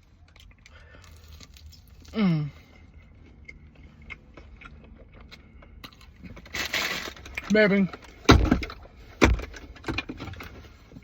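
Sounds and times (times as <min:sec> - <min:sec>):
person chewing food: 0:00.0 - 0:06.5.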